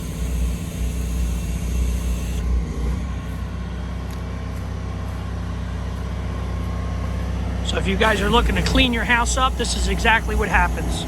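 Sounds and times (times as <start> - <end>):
vehicle engine droning: 0.0 - 11.0
high hiss: 8.0 - 11.0.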